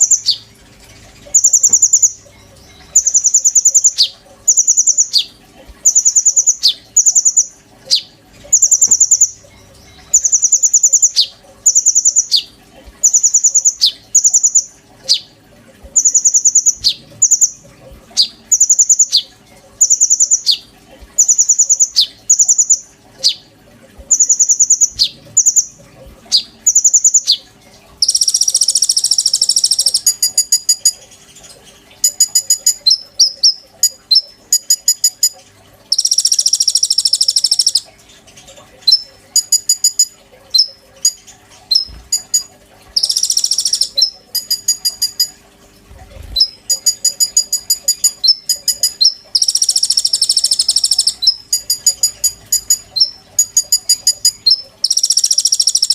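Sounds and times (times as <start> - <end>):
songbird singing: 26.3 - 31.0, 32.0 - 37.9, 38.8 - 45.3, 46.4 - 55.9.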